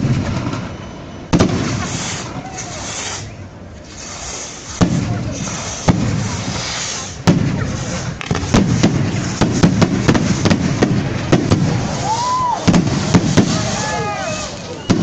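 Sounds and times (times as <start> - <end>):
firework bangs: 0.0 - 15.0
firework crackling pops: 0.0 - 15.0.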